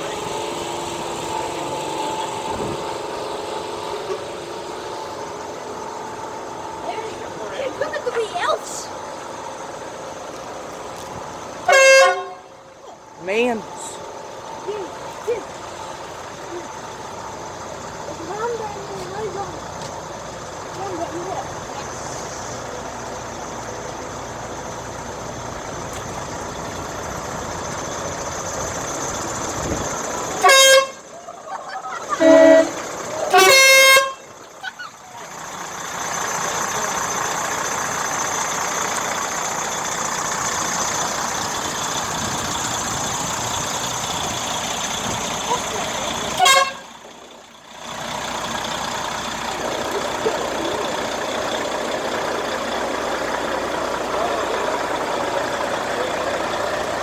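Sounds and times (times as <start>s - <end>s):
passing truck engines: 0.0s - 57.0s
road noise: 0.0s - 57.0s
truck horn blasts: 11.6s - 12.6s, 30.2s - 31.2s, 31.9s - 34.4s, 45.3s - 47.1s.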